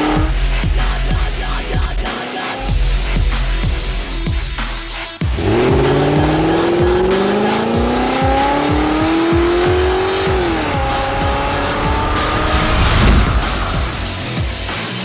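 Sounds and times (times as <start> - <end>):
car engine accelerating: 0.0 - 1.7, 2.7 - 15.0
music: 0.0 - 15.0.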